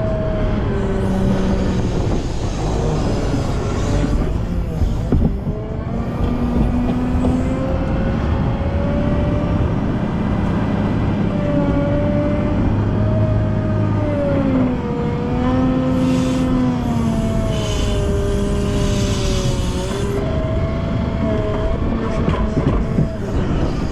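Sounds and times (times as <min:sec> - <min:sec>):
wheel loader diesel engine whining: 0:00.0 - 0:23.9.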